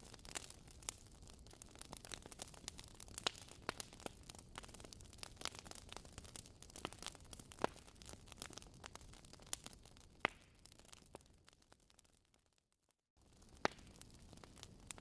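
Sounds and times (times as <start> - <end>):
fireplace crackling: 0.0 - 12.0, 13.2 - 15.0.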